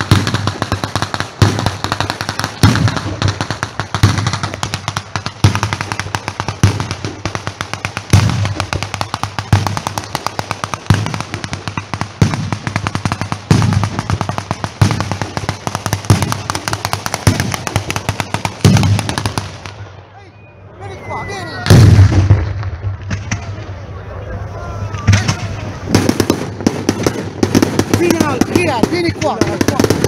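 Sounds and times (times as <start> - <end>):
heavy firework bangs: 0.0 - 20.0, 21.6 - 23.8, 24.9 - 30.0
firecrackers crackling: 0.0 - 30.0.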